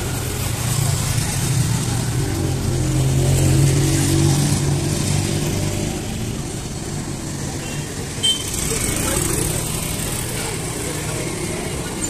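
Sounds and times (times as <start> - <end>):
vehicle engine passing: 0.0 - 7.5
road noise hiss: 0.0 - 12.0.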